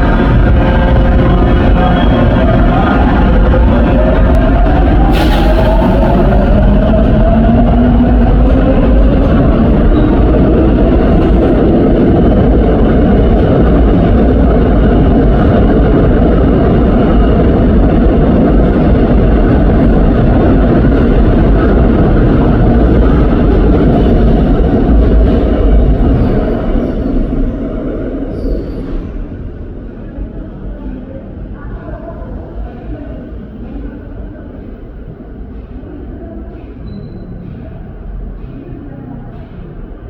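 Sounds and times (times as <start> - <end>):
electric train rumbling past: 0.0 - 40.0.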